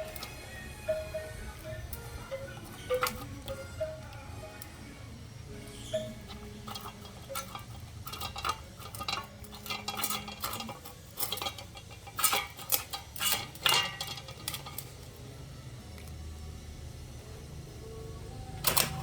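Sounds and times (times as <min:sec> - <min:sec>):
bowl clinking: 0:01.9 - 0:04.7, 0:05.9 - 0:15.0.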